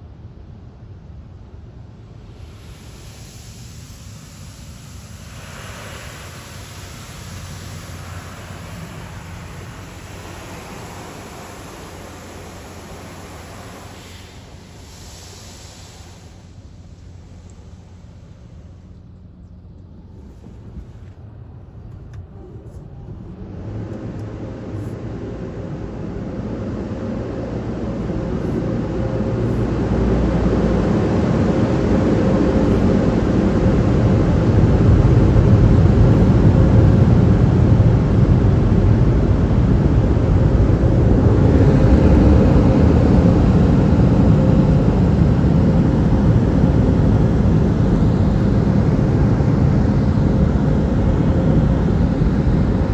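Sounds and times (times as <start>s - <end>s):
dryer blowers rushing air: 0.0s - 52.9s
faint whine: 0.0s - 52.9s.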